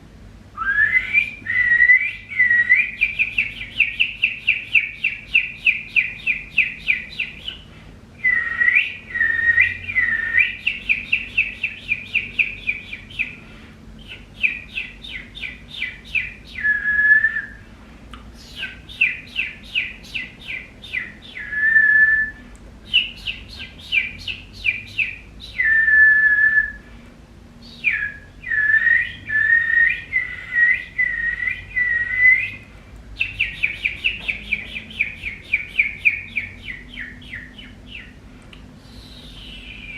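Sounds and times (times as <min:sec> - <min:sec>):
person whistling bird-like chirps: 0:00.6 - 0:07.6, 0:08.2 - 0:13.3, 0:14.1 - 0:17.6, 0:18.5 - 0:26.8, 0:27.8 - 0:32.6, 0:38.9 - 0:39.9
long held whistles: 0:00.6 - 0:13.4, 0:14.1 - 0:17.6, 0:18.5 - 0:26.9, 0:27.6 - 0:32.6, 0:38.8 - 0:39.9.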